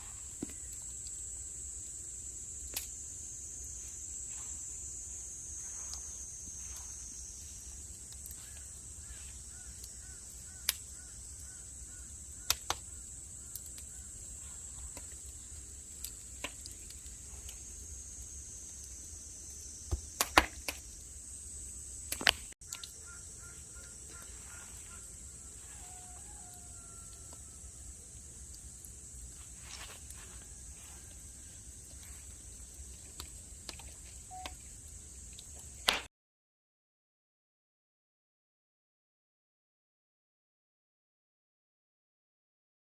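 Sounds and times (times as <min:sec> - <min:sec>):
insects droning: 0:00.0 - 0:36.1
faint bird calls: 0:08.3 - 0:15.0, 0:22.6 - 0:27.2.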